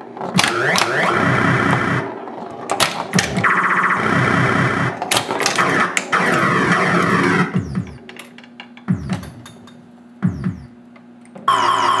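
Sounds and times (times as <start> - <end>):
pinball electronic sound effects: 0.3 - 2.1, 2.9 - 8.1, 8.9 - 9.6, 10.2 - 10.8, 11.5 - 12.0.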